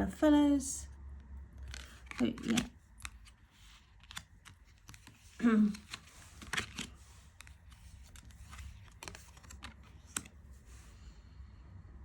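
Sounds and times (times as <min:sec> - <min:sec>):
cards clicking and tapping on table: 0:04.0 - 0:10.3.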